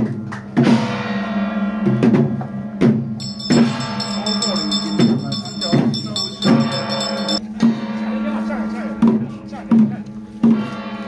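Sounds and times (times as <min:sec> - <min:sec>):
drum strikes: 0:01.9 - 0:08.0
sustained ringing tones: 0:03.2 - 0:07.4
gong strikes: 0:03.2 - 0:08.2.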